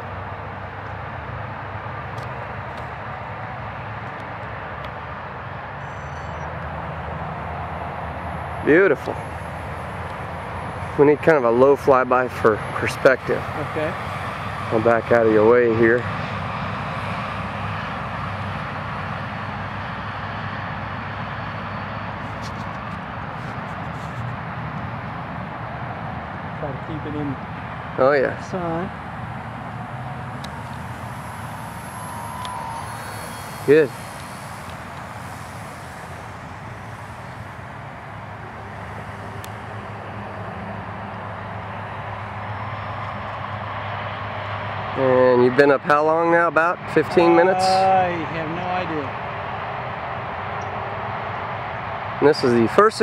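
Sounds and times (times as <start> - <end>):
model plane motor and propeller: 0.0 - 51.0
low rumbling hum: 5.1 - 45.0.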